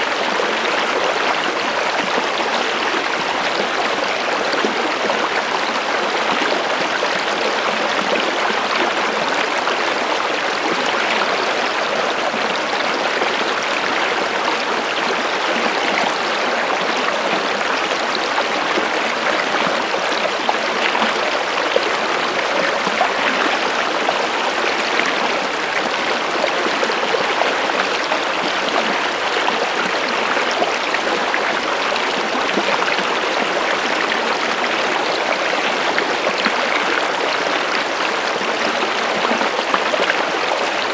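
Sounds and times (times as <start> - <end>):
stream water babbling: 0.0 - 40.9.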